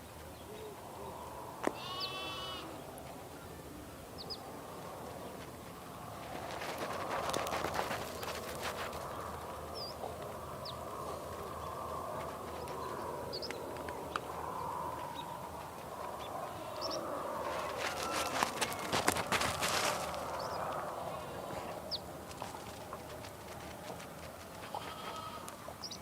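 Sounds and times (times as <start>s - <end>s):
sheep flock murmur: 0.6s - 6.0s, 6.7s - 26.0s
hooves clicking and shuffling: 2.7s - 26.0s
small birds chirping: 4.1s - 23.2s, 24.6s - 26.0s.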